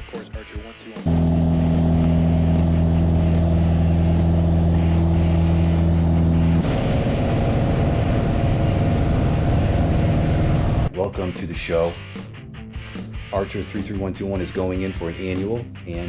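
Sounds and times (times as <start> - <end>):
aircraft engine drone: 1.1 - 10.9.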